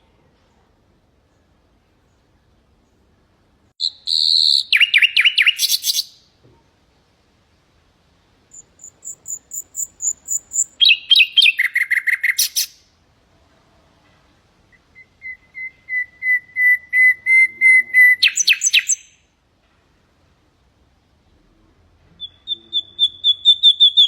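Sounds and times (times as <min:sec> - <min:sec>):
nightingale singing: 0:03.8 - 0:06.3, 0:08.5 - 0:12.9, 0:14.7 - 0:19.4, 0:22.1 - 0:24.0.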